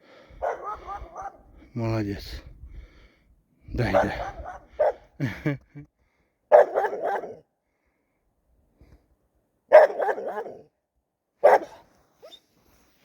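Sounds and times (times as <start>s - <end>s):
dog barking rapidly: 0.4s - 1.5s, 3.8s - 5.1s, 6.5s - 7.4s, 9.7s - 10.6s, 11.4s - 11.8s.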